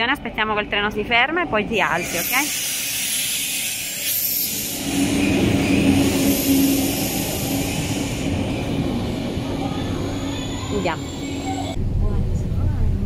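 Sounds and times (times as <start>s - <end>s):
electric train hum: 0.2s - 13.0s
train wheels rumbling: 1.6s - 13.0s.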